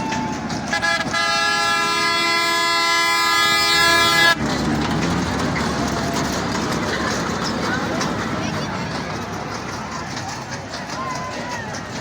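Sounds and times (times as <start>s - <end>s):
noisy background: 0.0s - 12.0s
train horn blast: 0.7s - 4.4s.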